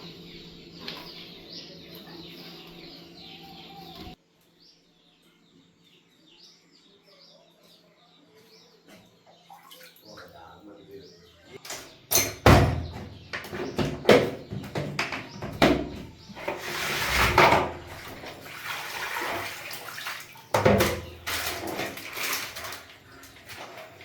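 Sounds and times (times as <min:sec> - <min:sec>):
water splashing and sloshing: 0:09.3 - 0:10.5, 0:12.4 - 0:24.0.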